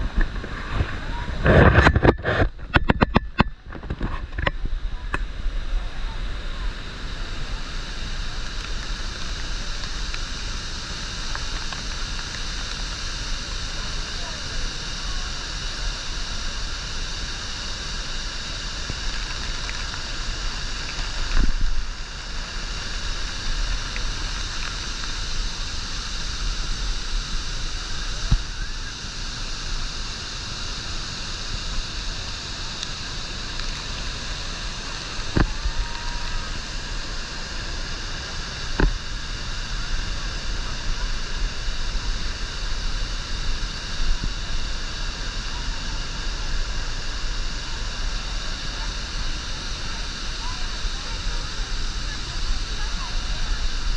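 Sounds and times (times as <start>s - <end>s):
waterfall rushing roar: 4.8s - 53.9s.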